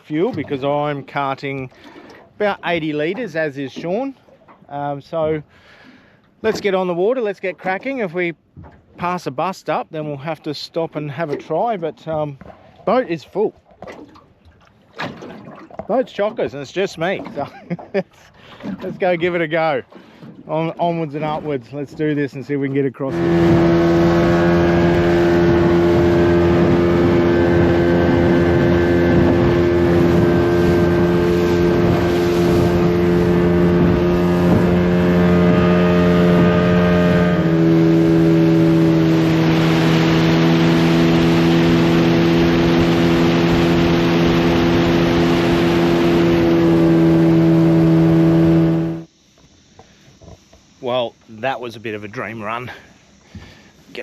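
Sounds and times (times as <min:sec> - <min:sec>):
outboard motor running: 0:00.0 - 0:54.0
water noise: 0:00.0 - 0:54.0
wind noise: 0:23.1 - 0:48.6.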